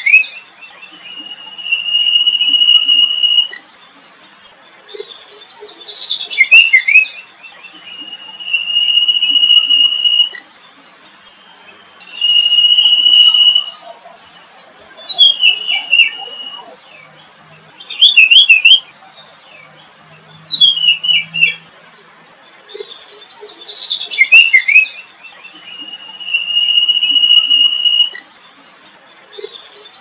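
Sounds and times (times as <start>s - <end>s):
bird trill: 0.0s - 30.0s
songbirds singing: 0.0s - 30.0s
long high bird whistle: 1.1s - 3.6s, 7.9s - 10.4s, 11.4s - 14.0s, 25.7s - 28.2s.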